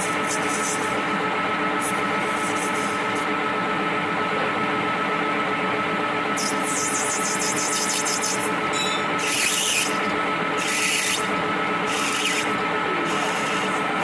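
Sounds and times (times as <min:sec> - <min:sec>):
rasping file on metal: 0:00.0 - 0:01.0, 0:06.4 - 0:14.0
workshop machine humming: 0:00.0 - 0:14.0.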